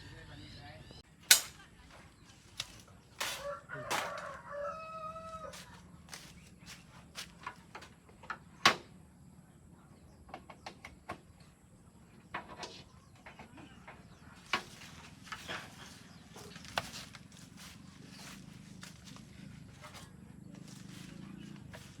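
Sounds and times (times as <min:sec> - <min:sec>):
rooster crowing: 0:03.2 - 0:05.8.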